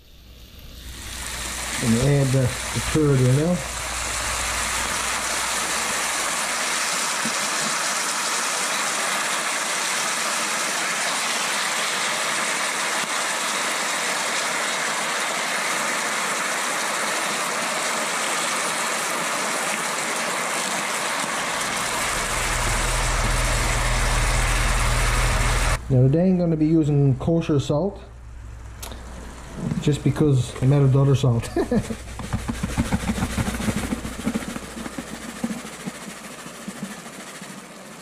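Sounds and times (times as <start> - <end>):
low rumble: 0.0 - 6.6, 21.5 - 30.6
meat frying in oil: 0.2 - 25.8, 31.6 - 38.0.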